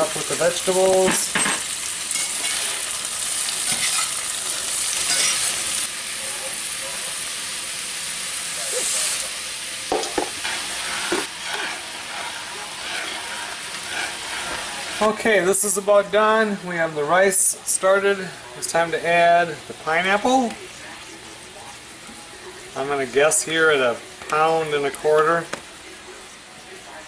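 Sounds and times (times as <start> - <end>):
shrimp sizzling in skillet: 0.0 - 27.0
rice poured into boiling water: 7.8 - 15.2.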